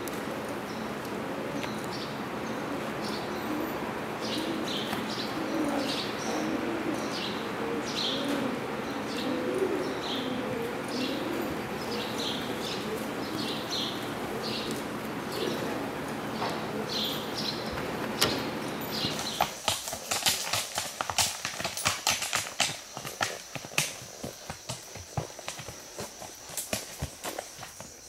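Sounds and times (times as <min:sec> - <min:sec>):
birds chirping: 0:00.0 - 0:21.1.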